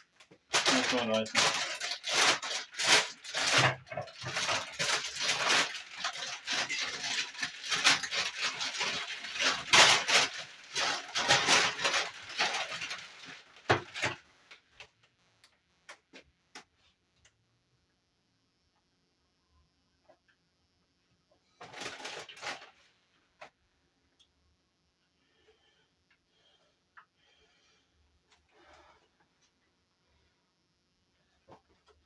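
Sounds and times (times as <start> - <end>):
rustling and clattering of parts: 0.1 - 15.2, 21.6 - 23.6.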